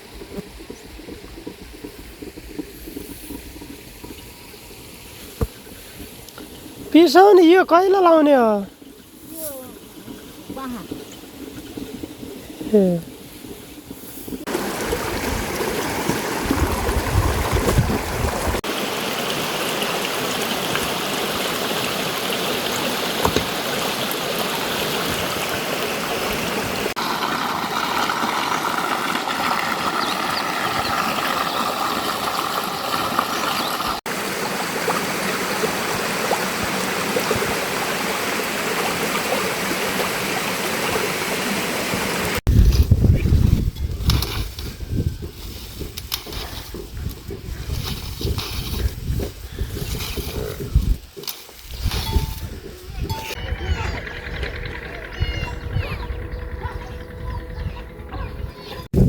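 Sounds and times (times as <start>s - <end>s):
flowing water rushing: 0.0s - 42.5s
heavy low rumble: 51.8s - 59.0s.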